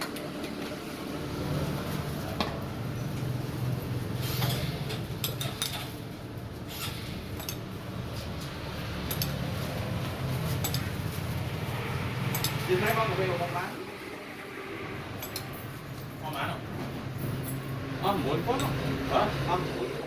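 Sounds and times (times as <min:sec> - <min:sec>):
glassware and utensils clinking: 0:04.4 - 0:06.0, 0:10.5 - 0:11.2, 0:15.2 - 0:16.5, 0:18.4 - 0:18.9.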